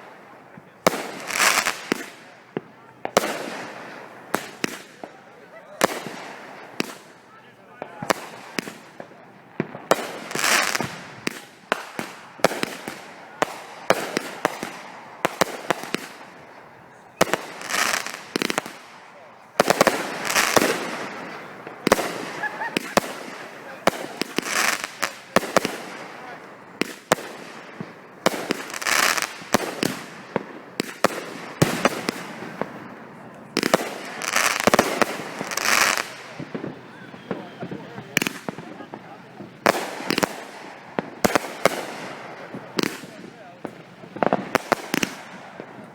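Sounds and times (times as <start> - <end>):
firework bangs: 0.0 - 45.9
firework rushing hiss: 17.2 - 32.8, 33.6 - 43.2.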